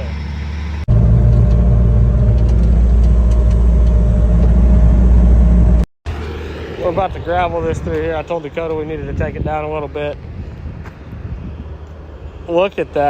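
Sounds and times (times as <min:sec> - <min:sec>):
heavy machinery engine rumbling: 0:00.0 - 0:09.2.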